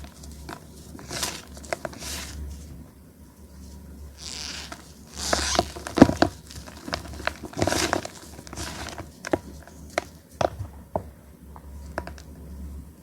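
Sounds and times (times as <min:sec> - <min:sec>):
chalk block crunching: 0:00.0 - 0:02.4, 0:04.2 - 0:09.6.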